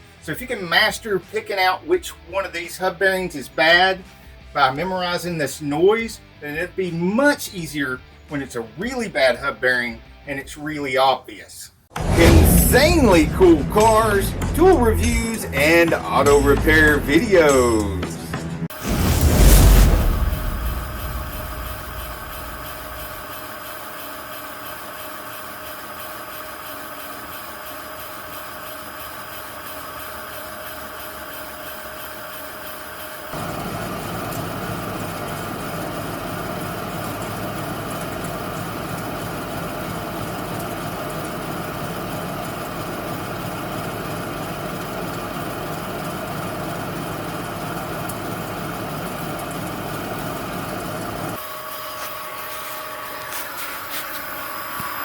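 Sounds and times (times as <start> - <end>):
wheel bearings whirring: 18.8 - 55.0.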